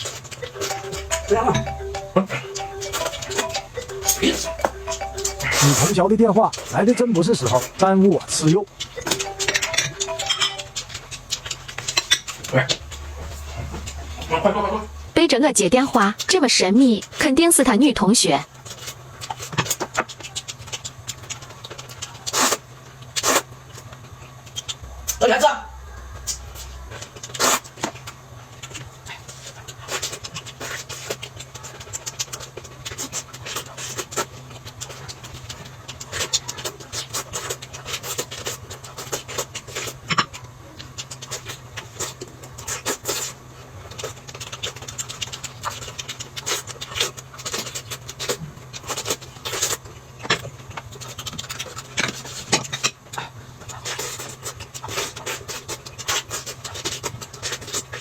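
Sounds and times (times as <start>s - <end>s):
steady low hum: 0.1s - 18.7s, 24.4s - 29.1s
chewing and mouth smacking: 28.5s - 58.0s.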